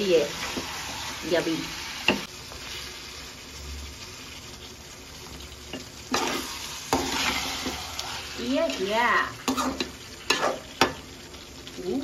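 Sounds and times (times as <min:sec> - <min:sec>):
curry sizzling in a pan: 0:00.0 - 0:12.0
metal spatula scraping a pan: 0:05.8 - 0:11.0.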